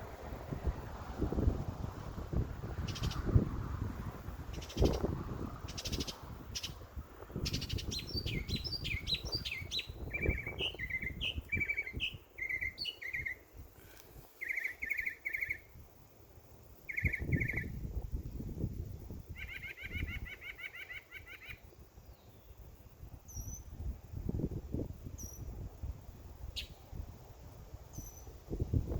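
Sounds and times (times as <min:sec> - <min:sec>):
songbirds chirping and singing: 0:07.5 - 0:13.4.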